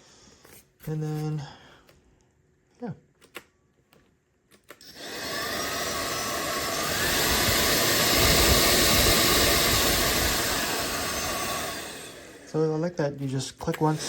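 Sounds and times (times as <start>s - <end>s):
vacuum motor whining: 4.8s - 12.8s, 13.4s - 14.0s.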